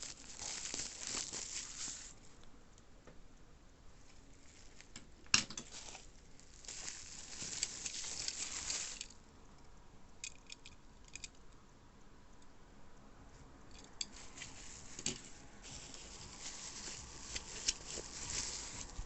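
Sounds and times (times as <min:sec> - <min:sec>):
packaging rustling and crinkling: 0:00.0 - 0:02.3, 0:04.1 - 0:05.0, 0:05.6 - 0:09.2, 0:14.1 - 0:19.0.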